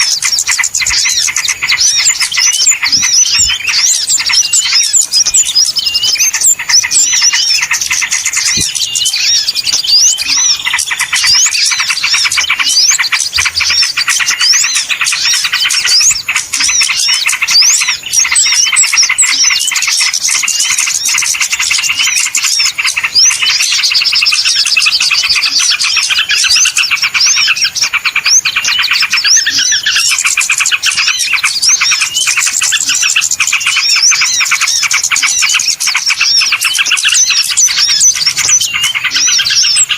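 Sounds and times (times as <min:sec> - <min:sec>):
many small birds chirping: 0:00.0 - 0:39.9.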